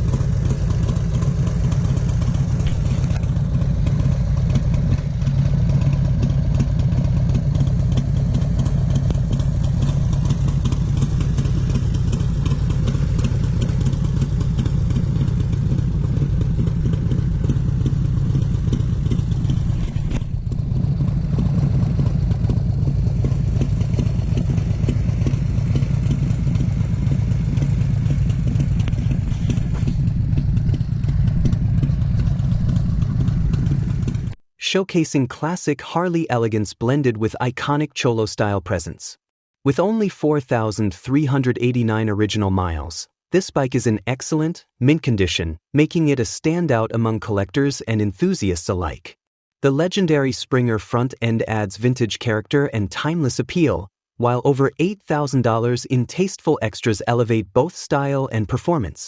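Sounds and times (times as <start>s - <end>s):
motorcycle engine running: 0.0s - 34.4s.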